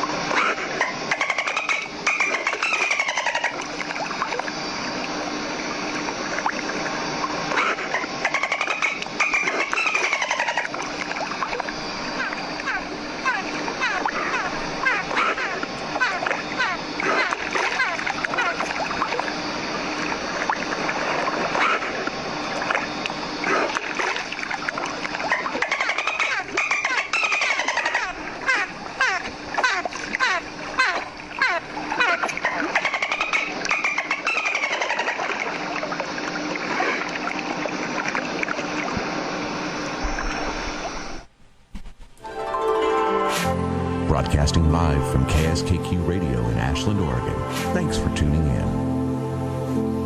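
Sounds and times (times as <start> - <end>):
dolphins whistling: 0.0 - 41.3
water splashing: 0.0 - 41.3
music: 42.2 - 50.0.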